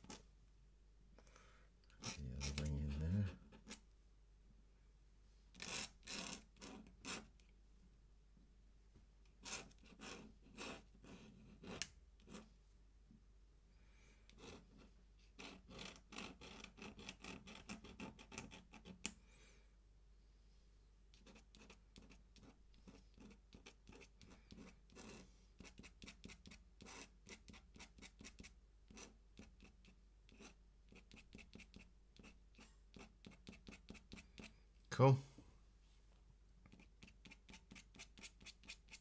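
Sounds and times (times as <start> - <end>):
pen scratching on paper: 5.6 - 7.3, 9.4 - 12.5, 14.3 - 19.1, 21.1 - 34.5, 36.7 - 39.0.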